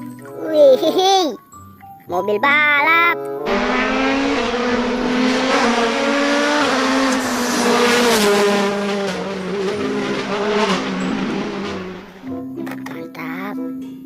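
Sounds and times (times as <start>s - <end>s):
racing car engine at high revs: 3.5s - 12.4s.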